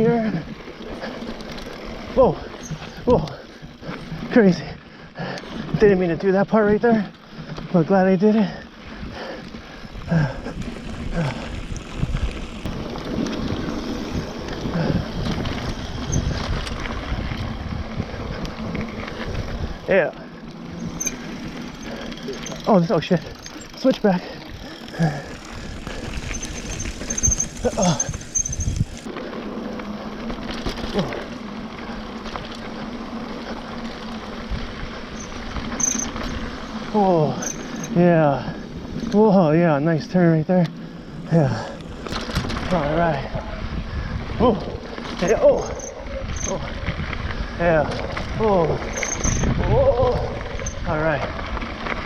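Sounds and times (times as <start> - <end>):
rider vocal sounds: 0.0 - 1.3, 2.0 - 8.7, 9.3 - 12.0, 19.8 - 29.1, 30.8 - 31.4, 36.8 - 41.9, 42.6 - 43.7, 44.3 - 46.9, 47.5 - 51.4
bike rattling: 0.0 - 52.0
wind buffeting microphone: 8.8 - 19.9, 20.6 - 29.1, 41.2 - 52.0
tyres crunching over stones: 18.8 - 29.5.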